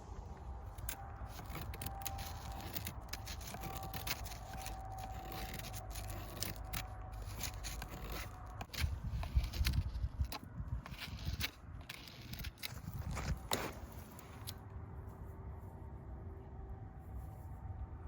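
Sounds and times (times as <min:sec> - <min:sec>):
steady low rumble: 0:00.0 - 0:18.0
clicks and scrapes of handling: 0:00.4 - 0:14.6.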